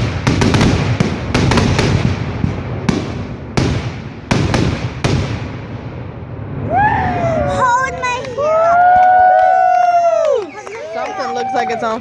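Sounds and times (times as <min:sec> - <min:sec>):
fireworks bangs and pops: 0:00.0 - 0:06.2.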